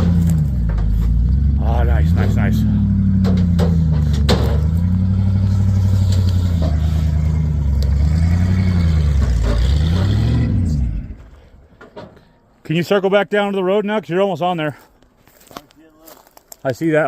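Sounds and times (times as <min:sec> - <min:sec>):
truck engine under heavy load: 0:00.0 - 0:12.2.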